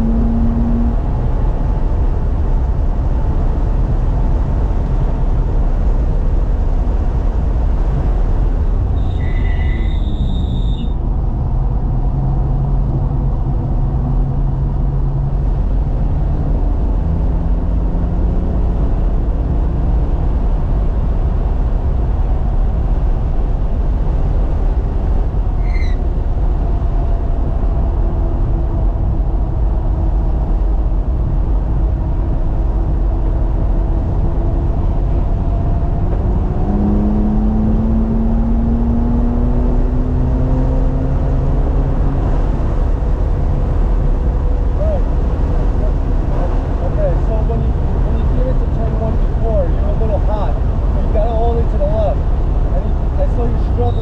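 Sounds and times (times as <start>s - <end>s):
car engine revving: 0.0s - 2.0s, 34.0s - 54.0s
road and tyre noise: 0.0s - 54.0s.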